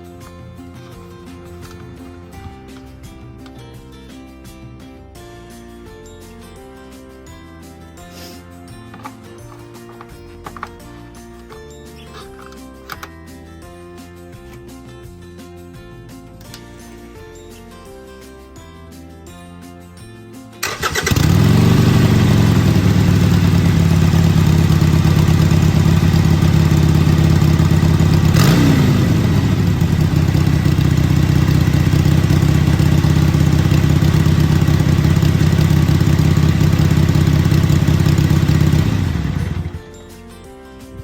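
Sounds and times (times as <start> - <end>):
motorcycle engine starting and idling: 20.6 - 39.9.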